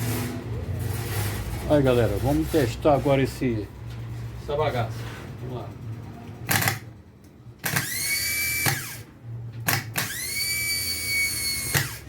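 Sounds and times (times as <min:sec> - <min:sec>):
starter motor whining: 0:07.6 - 0:09.1, 0:09.7 - 0:12.0.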